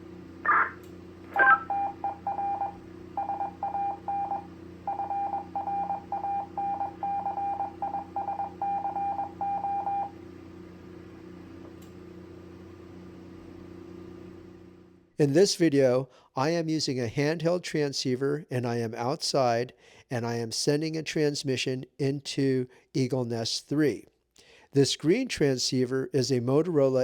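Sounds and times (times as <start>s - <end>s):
low radio hum: 0.0s - 4.6s
morse code beep tone: 1.4s - 10.1s.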